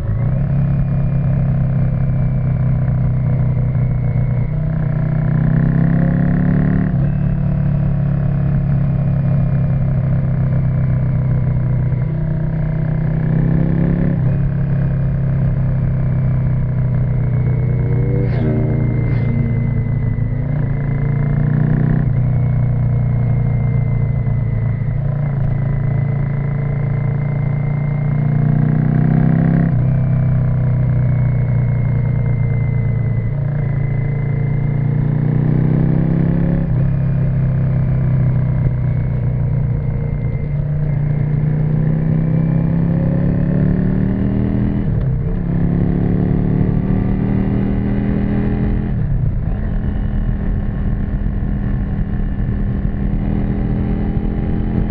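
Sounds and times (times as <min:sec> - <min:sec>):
motorcycle engine riding: 0:00.0 - 0:54.9.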